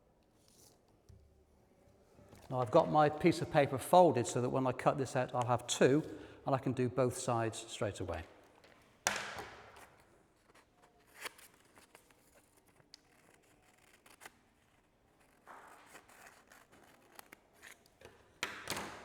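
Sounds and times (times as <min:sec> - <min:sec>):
scissors snipping paper: 0:12.6 - 0:18.0.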